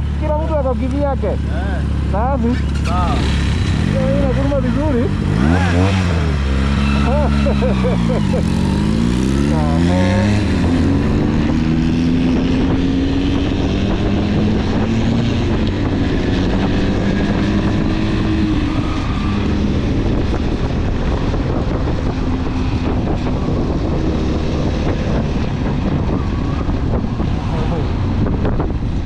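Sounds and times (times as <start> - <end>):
motorcycle engine running: 0.0 - 18.6
wind buffeting microphone: 7.7 - 29.0.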